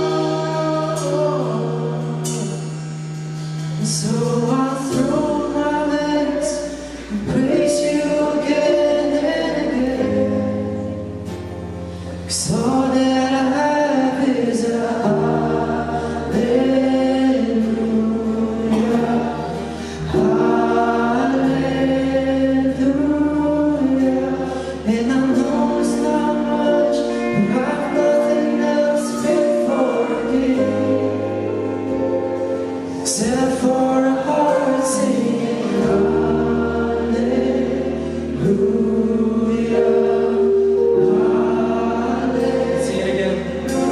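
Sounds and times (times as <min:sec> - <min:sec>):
choir singing held notes: 0:00.0 - 0:43.9
sustained bass chords: 0:00.0 - 0:43.9.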